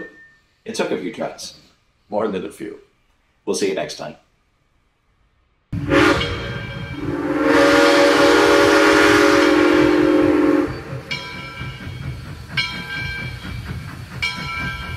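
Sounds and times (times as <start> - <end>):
train whistle blowing: 5.8 - 11.3
moving train rumble: 5.8 - 14.9
ringing strike: 6.1 - 7.2.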